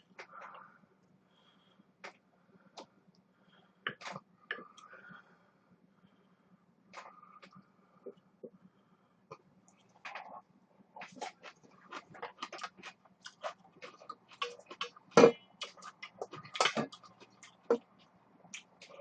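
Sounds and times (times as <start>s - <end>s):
person chewing noodles: 11.0s - 19.0s.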